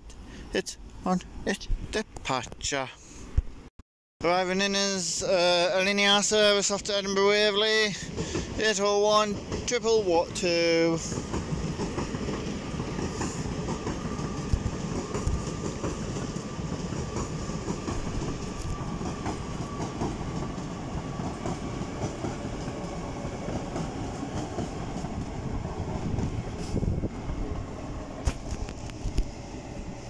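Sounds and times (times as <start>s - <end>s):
train rumbling past: 4.2s - 30.0s
wheels clicking over rail joints: 7.5s - 27.6s.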